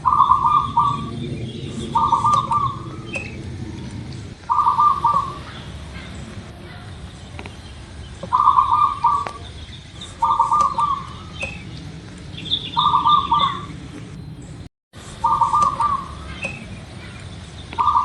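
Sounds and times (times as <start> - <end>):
dove cooing: 0.0 - 18.0
small birds chirping: 0.0 - 18.0.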